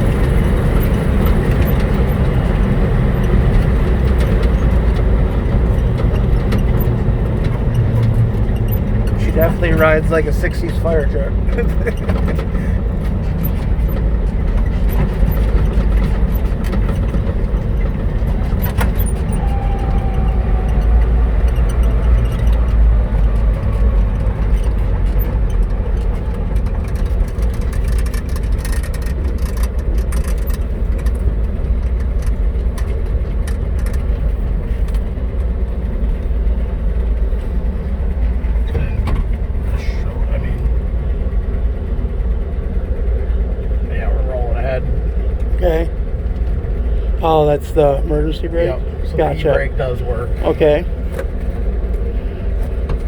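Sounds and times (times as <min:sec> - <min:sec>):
truck engine and road rumble: 0:00.0 - 0:53.0
light clicks and rattles: 0:20.2 - 0:35.5.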